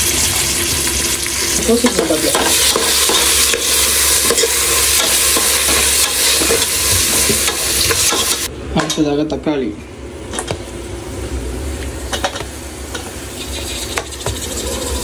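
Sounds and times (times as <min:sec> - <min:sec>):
onions sizzling in hot oil: 0:00.0 - 0:08.5, 0:12.0 - 0:15.0
spoon scraping and knocking pan: 0:01.8 - 0:08.5.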